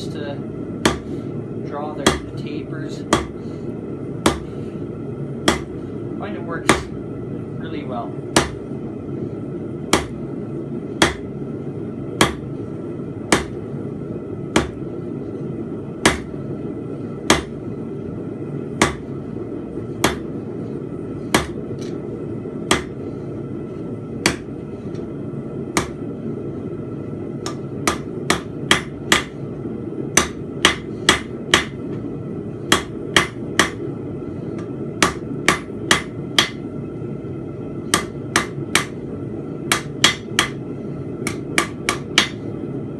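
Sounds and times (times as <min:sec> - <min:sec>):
hammer striking steel on anvil: 0:11.0 - 0:11.3, 0:16.0 - 0:16.3, 0:22.7 - 0:23.0, 0:25.8 - 0:26.0, 0:27.4 - 0:29.4, 0:30.2 - 0:31.8, 0:32.7 - 0:33.8, 0:35.0 - 0:36.6, 0:37.9 - 0:39.0, 0:39.7 - 0:40.6, 0:41.2 - 0:42.4.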